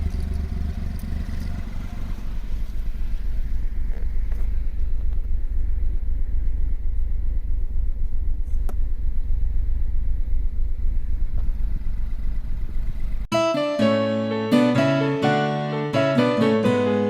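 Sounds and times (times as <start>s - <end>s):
car engine idling: 0.0s - 13.3s
piano music: 13.3s - 17.0s.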